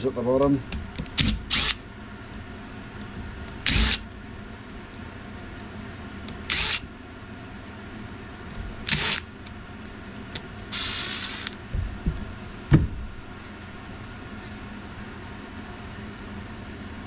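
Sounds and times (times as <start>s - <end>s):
power screwdriver whirring: 1.1s - 1.8s, 3.6s - 4.0s, 6.3s - 6.9s, 8.8s - 9.3s, 10.3s - 11.6s.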